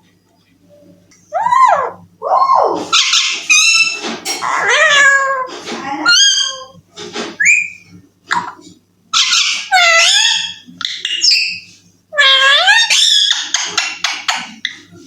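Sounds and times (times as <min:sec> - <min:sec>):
parakeet squawking: 0:01.3 - 0:06.8, 0:07.4 - 0:11.6, 0:12.2 - 0:13.9.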